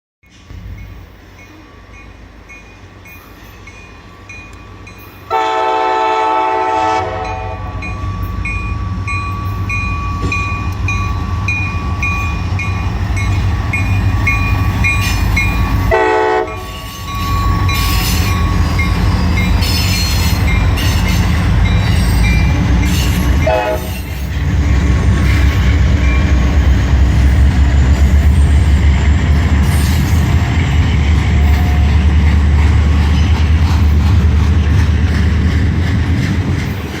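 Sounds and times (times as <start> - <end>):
locomotive air horn: 5.3 - 7.9, 15.9 - 16.9, 23.4 - 24.2.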